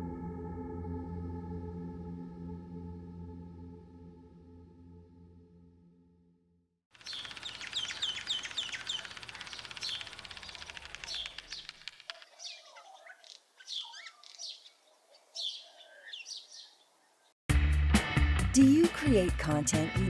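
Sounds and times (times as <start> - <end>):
wild birds singing: 7.0 - 17.4.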